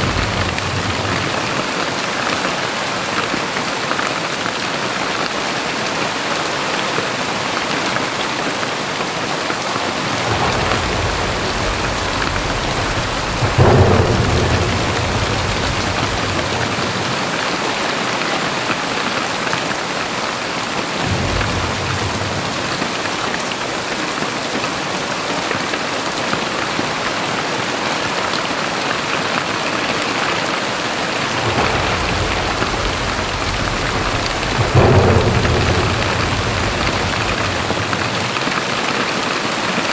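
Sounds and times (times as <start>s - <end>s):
sharp thunderclap: 0.0s - 1.9s, 9.8s - 18.5s, 20.8s - 24.2s, 30.7s - 39.8s
thunder rolling: 0.0s - 1.9s, 9.7s - 18.6s, 20.9s - 24.2s, 30.6s - 39.9s
heavy rain pouring: 0.0s - 39.9s.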